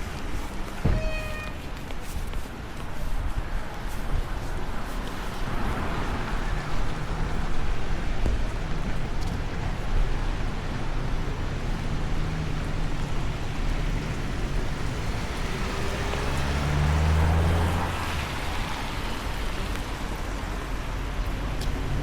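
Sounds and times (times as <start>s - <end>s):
rain: 0.0s - 22.0s
vehicle engine passing: 11.8s - 20.0s.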